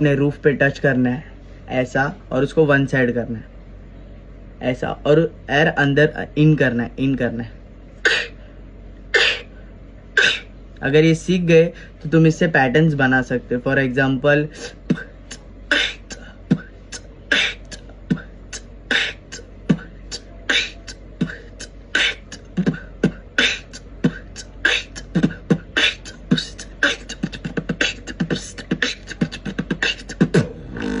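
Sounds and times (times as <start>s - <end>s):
beatboxing: 8.0s - 8.4s, 9.2s - 9.5s, 10.2s - 10.5s, 14.5s - 31.0s.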